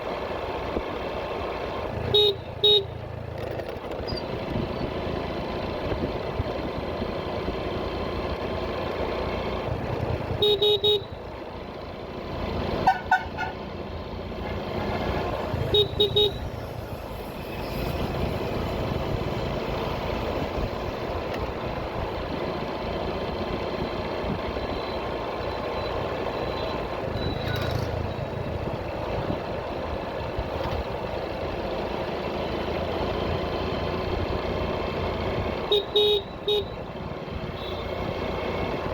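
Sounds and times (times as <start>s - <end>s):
motorcycle engine and road noise: 0.0s - 38.9s
vehicle horns honking: 2.0s - 3.0s, 10.3s - 11.2s, 12.8s - 13.7s, 14.4s - 16.6s, 35.6s - 36.9s, 37.5s - 38.0s
short horn beeps: 10.4s - 11.2s, 12.8s - 13.6s, 15.6s - 16.6s, 37.6s - 38.0s.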